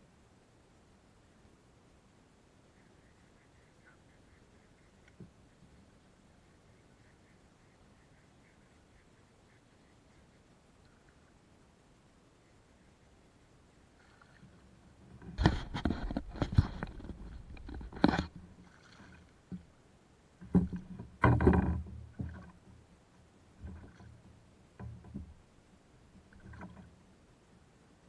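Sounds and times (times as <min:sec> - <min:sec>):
knocks against kayak hull: 0:20.4 - 0:22.5.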